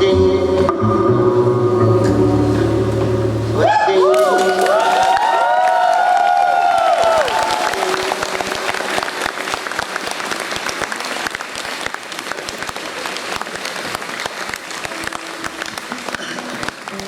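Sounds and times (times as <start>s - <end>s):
audience applauding: 4.0s - 17.0s.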